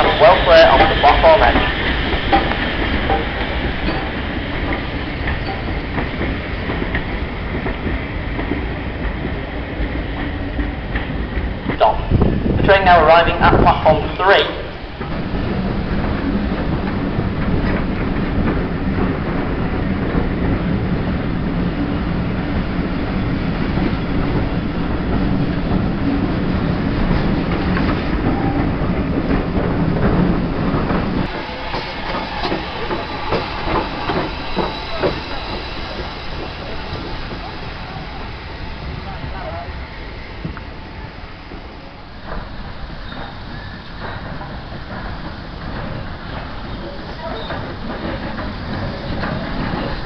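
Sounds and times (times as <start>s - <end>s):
train wheels rumbling on rail: 0.0s - 50.0s
wheels clicking over rail joints: 41.5s - 50.0s.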